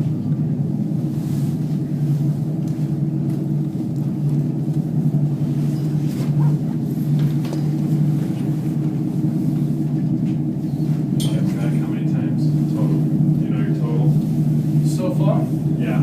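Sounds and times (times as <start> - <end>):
cable car hum and rumble: 0.0 - 16.0.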